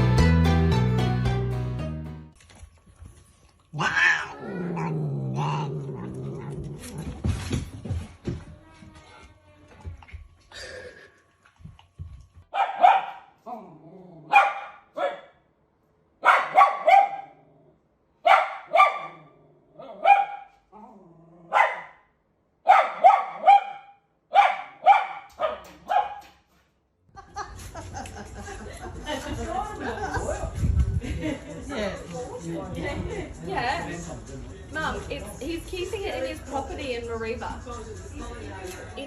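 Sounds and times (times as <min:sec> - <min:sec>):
dog barking: 0:12.5 - 0:13.4, 0:14.3 - 0:15.4, 0:16.2 - 0:17.4, 0:18.2 - 0:20.5, 0:21.5 - 0:26.4.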